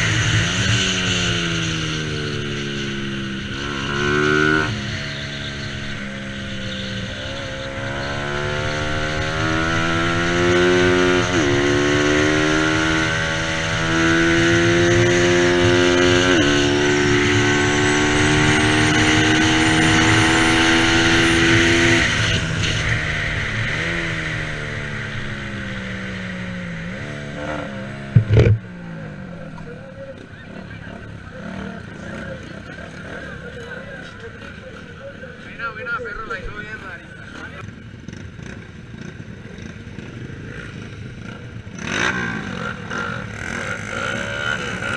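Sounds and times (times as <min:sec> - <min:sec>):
motorcycle engine revving: 0:00.0 - 0:44.9
loud knocks: 0:28.1 - 0:28.6.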